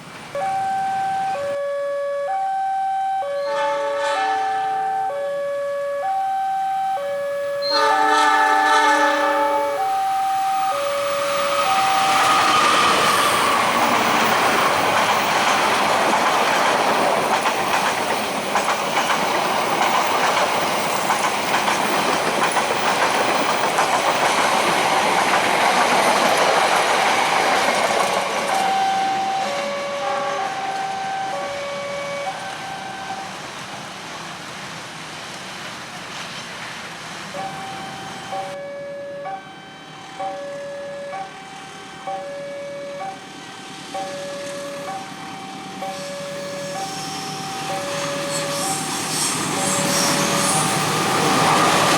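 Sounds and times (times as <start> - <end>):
train rumbling over crossing: 0.0 - 51.9
two-pitch crossing warning signal: 0.4 - 15.7, 27.8 - 33.4, 37.4 - 51.9.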